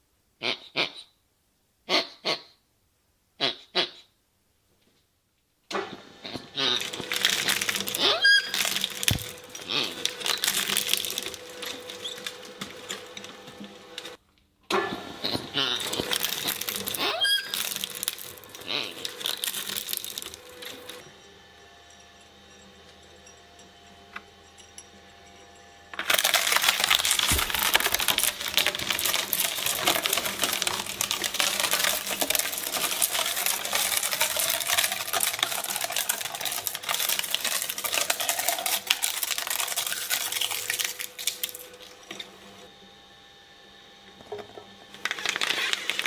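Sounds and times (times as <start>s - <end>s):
shredder crackling and clicking: 5.7s - 21.2s, 25.9s - 42.4s, 44.2s - 46.0s.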